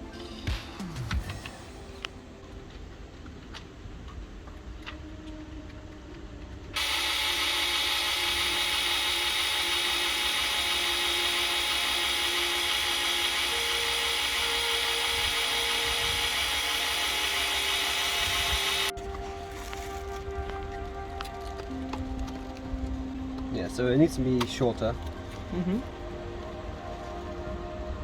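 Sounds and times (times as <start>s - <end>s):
power tool whirring: 6.8s - 20.2s.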